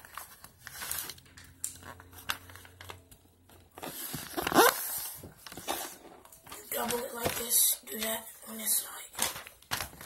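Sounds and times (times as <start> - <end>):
paper rustling and folding: 0.0 - 10.0.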